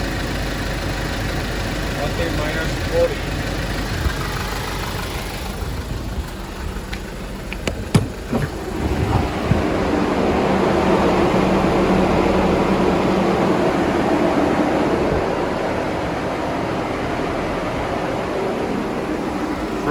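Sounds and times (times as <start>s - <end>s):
refrigeration unit droning: 0.0s - 19.9s
clicks: 6.9s - 9.6s.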